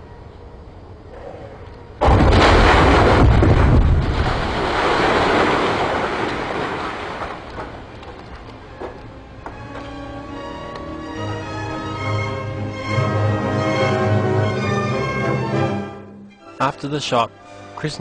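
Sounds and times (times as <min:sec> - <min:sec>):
fireball explosion: 0:02.0 - 0:07.6.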